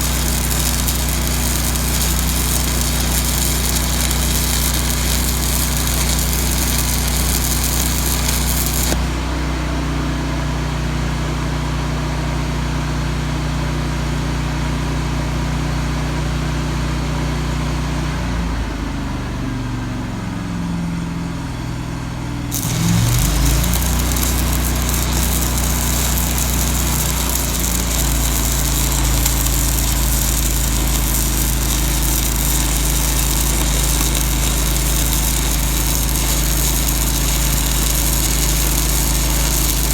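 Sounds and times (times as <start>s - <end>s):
welding arc crackling: 0.0s - 9.2s, 22.5s - 39.9s
welder engine running: 0.0s - 10.0s, 22.5s - 39.9s.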